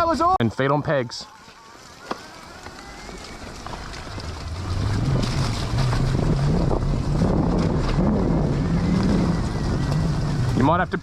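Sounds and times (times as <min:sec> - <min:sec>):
dirt bike engine revving: 0:02.8 - 0:11.0
wind buffeting microphone: 0:03.0 - 0:11.0.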